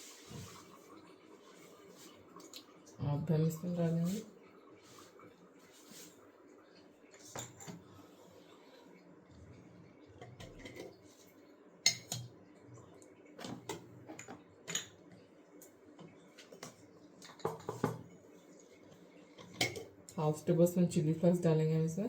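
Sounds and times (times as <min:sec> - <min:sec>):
metal spoon clinking on bowls: 0:07.4 - 0:07.8, 0:11.9 - 0:12.3.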